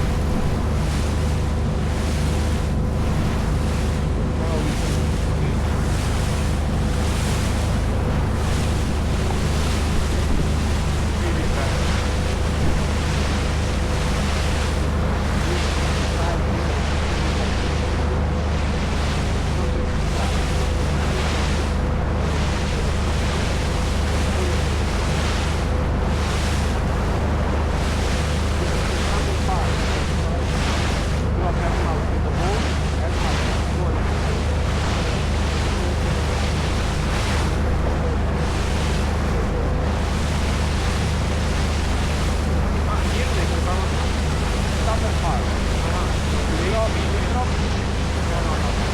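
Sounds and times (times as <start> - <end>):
wind buffeting microphone: 0.0 - 24.2
boat engine running: 0.0 - 48.9
water rushing past hull: 0.0 - 48.9.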